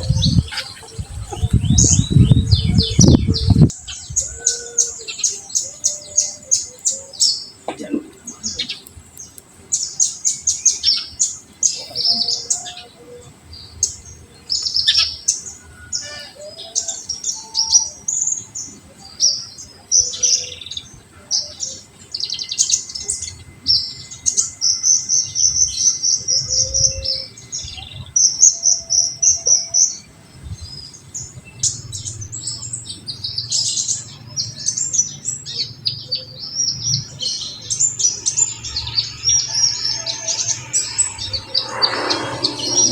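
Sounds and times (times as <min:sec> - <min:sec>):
sunbird chirping and trilling: 0:09.8 - 0:42.9.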